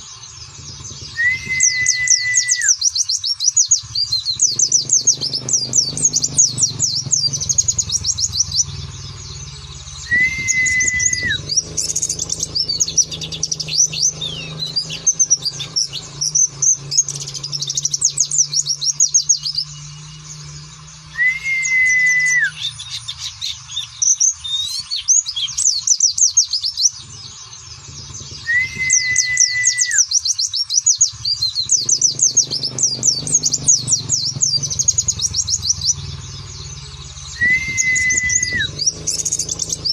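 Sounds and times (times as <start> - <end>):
bird twittering: 0.0 - 39.9
low steady hum: 3.5 - 25.9, 31.0 - 39.9.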